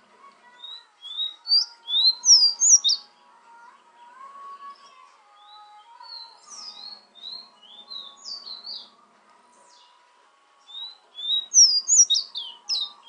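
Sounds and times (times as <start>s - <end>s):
bird whistling song: 0.6s - 3.1s, 4.7s - 8.9s, 10.7s - 13.0s.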